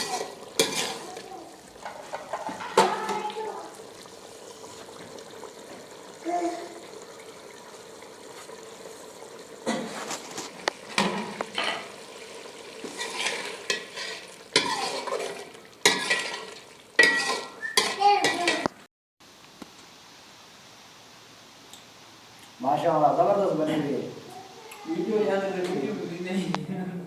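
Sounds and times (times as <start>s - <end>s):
metal spoon scraping in a pot: 0.0s - 2.9s, 12.8s - 18.7s
low sizzle of frying food: 0.0s - 27.0s.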